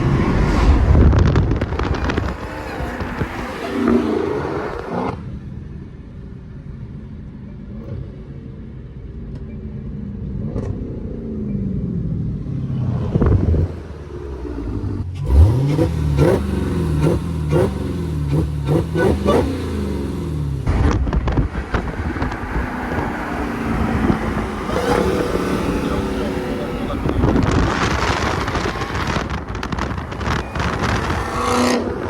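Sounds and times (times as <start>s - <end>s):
car engine revving: 0.0s - 5.3s, 9.9s - 32.0s.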